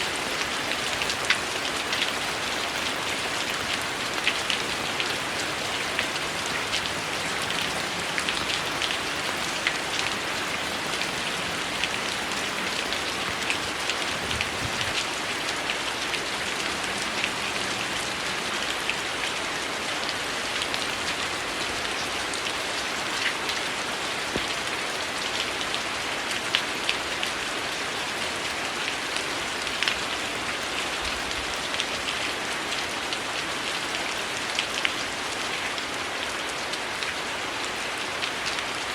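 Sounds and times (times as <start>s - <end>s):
heavy rain hissing: 0.0s - 24.9s
rain drops ticking: 0.0s - 38.9s.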